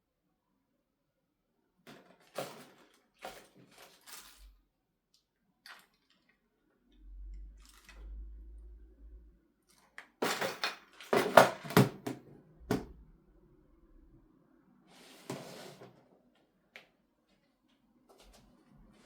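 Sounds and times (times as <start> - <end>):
hard objects knocking: 11.2 - 13.0.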